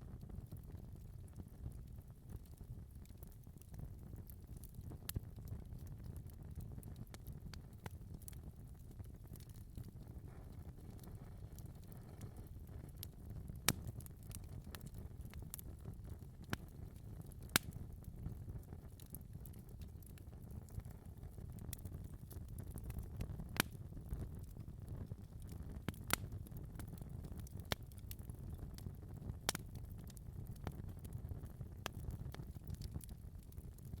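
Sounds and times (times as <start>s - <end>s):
fire crackling and popping: 0.0s - 34.0s
fire rumbling: 0.0s - 34.0s.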